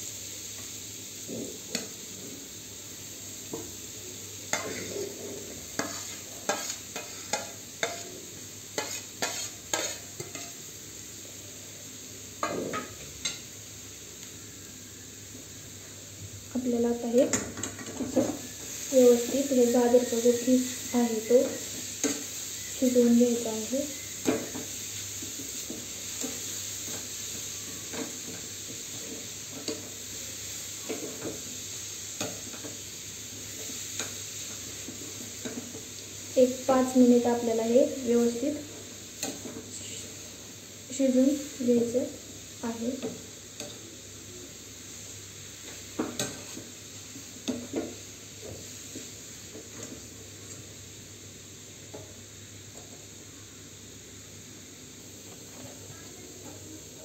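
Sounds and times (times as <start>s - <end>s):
carrots sizzling in a metal pan: 0.0s - 57.0s
spoon scraping and knocking pan: 4.5s - 5.2s, 5.8s - 8.2s, 8.8s - 10.6s, 24.2s - 29.9s, 45.7s - 46.7s
spatula stirring and scraping: 4.5s - 8.2s, 8.8s - 10.6s, 45.7s - 46.8s.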